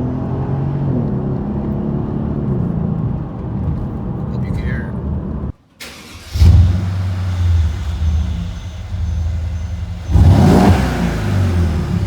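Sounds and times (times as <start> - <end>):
engine throttle blip: 5.8 - 12.0
deep exhaust drone: 6.4 - 12.0.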